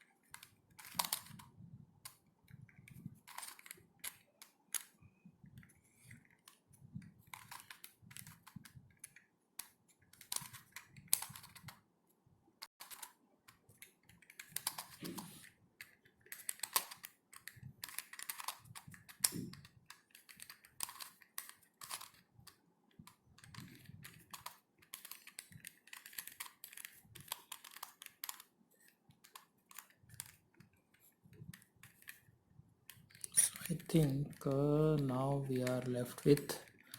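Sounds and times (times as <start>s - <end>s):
puzzle cube clicking: 0.2s - 6.6s, 7.2s - 11.8s, 12.8s - 36.9s.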